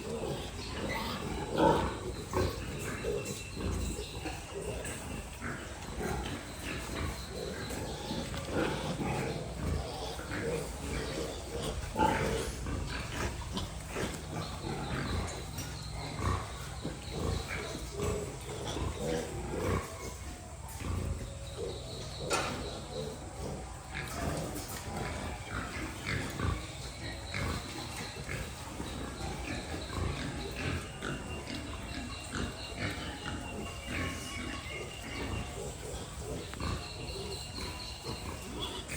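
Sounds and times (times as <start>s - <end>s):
pigs grunting: 0.0s - 38.9s.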